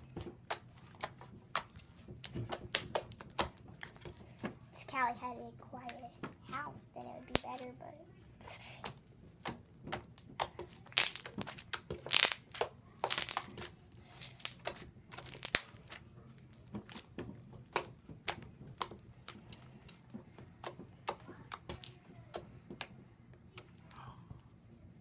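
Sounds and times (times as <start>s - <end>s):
slime crackling and popping: 0.4s - 4.0s, 9.3s - 19.4s.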